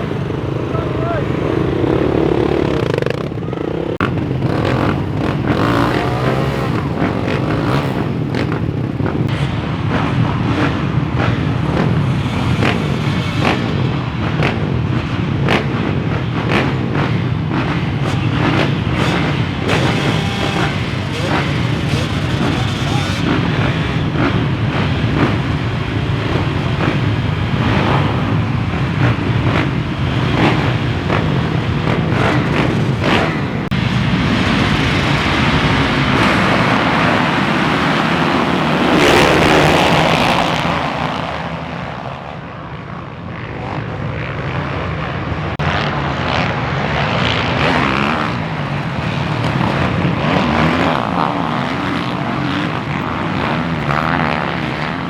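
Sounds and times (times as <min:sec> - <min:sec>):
motocross bike engines revving: 0:00.0 - 0:55.0.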